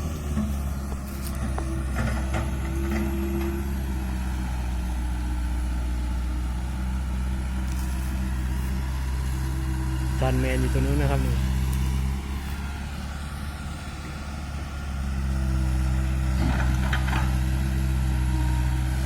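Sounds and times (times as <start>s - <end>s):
heavy machinery diesel engine: 0.0s - 19.0s.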